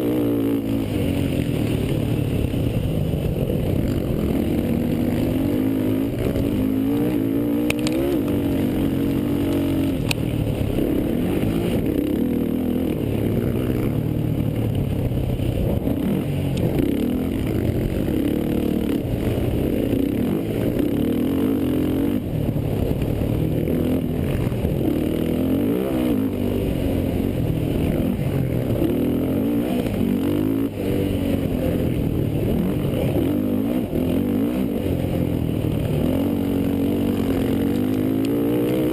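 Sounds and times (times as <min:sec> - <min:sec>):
quad engines revving: 0:00.0 - 0:14.5, 0:15.6 - 0:38.9
faint sharp ticks: 0:07.6 - 0:10.3, 0:16.5 - 0:16.8.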